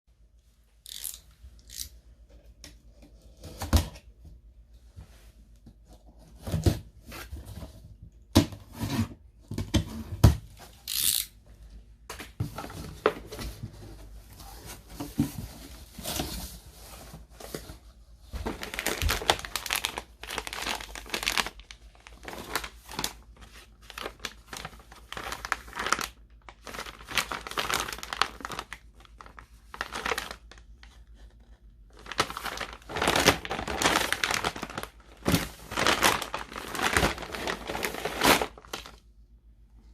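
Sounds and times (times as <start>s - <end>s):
packaging tearing and rustling: 18.5s - 30.9s, 31.9s - 39.0s.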